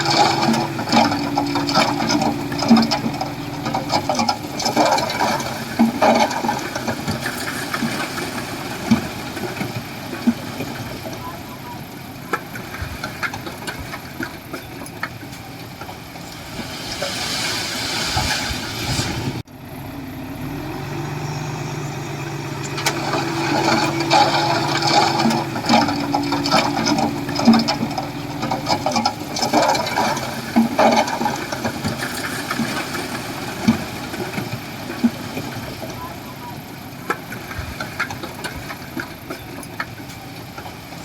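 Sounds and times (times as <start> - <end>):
metal and rock clanking: 0.0 - 11.0, 22.7 - 35.8
heavy diesel machinery running: 0.0 - 41.0.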